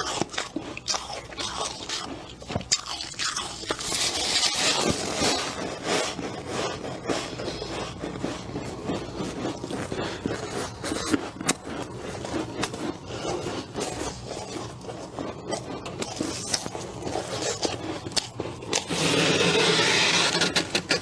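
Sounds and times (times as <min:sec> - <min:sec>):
ice being chewed: 0:00.0 - 0:21.0.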